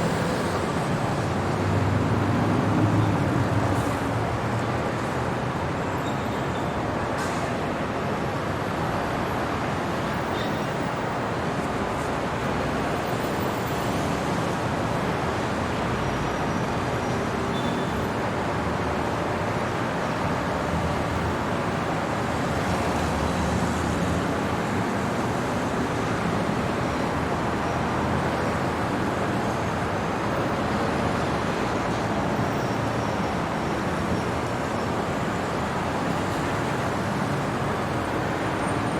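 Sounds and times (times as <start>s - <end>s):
hum of passing vehicles: 0.0s - 5.6s.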